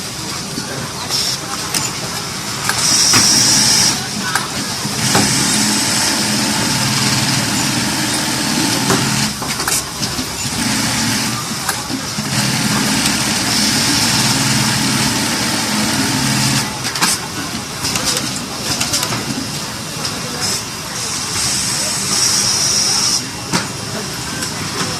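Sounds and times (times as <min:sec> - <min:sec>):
sewing machine running: 0:02.6 - 0:17.2.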